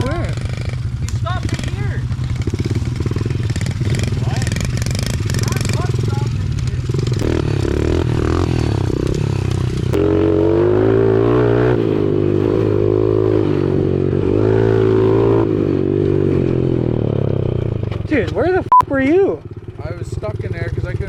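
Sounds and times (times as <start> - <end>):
small motorbike engines running: 0.0 - 10.4, 15.4 - 21.0
engine revving: 0.0 - 18.7.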